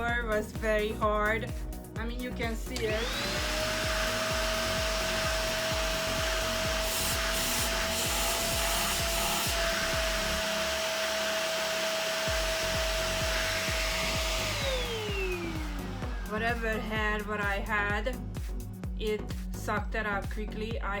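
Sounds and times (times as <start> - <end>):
vacuum cleaner motor whine: 2.7 - 17.0.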